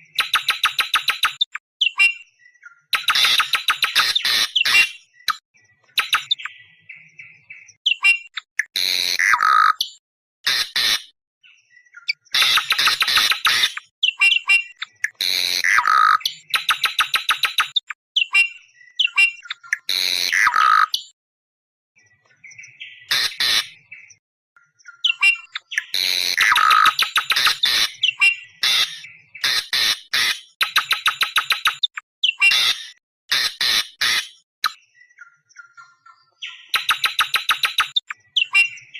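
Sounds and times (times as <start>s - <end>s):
harsh screeching bird calls: 2.9s - 6.7s, 7.9s - 11.1s, 12.1s - 21.1s, 22.9s - 23.9s, 25.0s - 34.4s, 36.4s - 38.9s.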